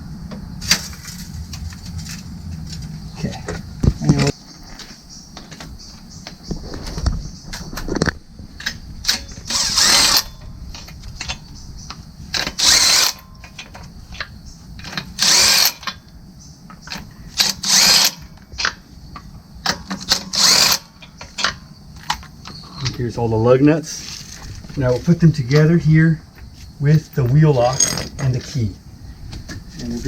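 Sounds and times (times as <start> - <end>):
impact wrench bursts: 9.1 - 10.4, 12.3 - 13.6, 14.8 - 16.0, 16.9 - 18.7, 19.8 - 22.2.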